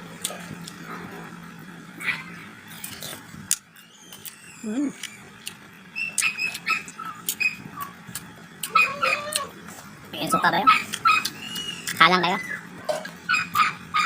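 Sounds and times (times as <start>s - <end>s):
low rising and falling animal call: 3.8s - 8.0s, 8.7s - 9.6s.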